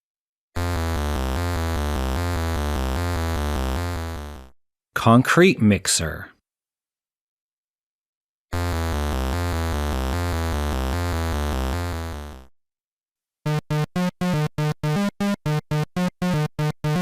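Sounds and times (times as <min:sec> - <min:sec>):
low buzzing synth tone: 0:00.6 - 0:04.5.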